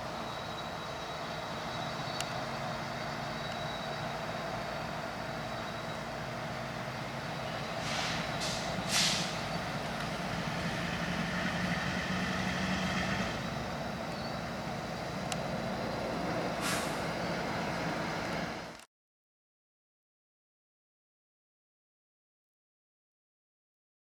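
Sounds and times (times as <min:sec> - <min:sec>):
diesel locomotive running: 0:00.0 - 0:18.8
air brake hisses: 0:07.8 - 0:09.6, 0:16.6 - 0:17.2.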